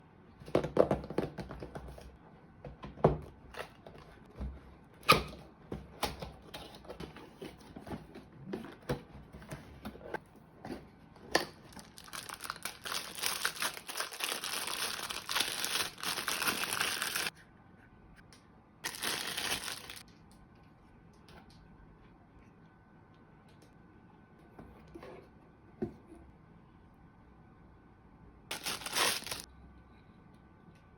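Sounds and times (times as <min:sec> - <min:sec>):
plastic wrapping crinkling: 0:11.5 - 0:17.3, 0:18.8 - 0:20.0, 0:28.5 - 0:29.5.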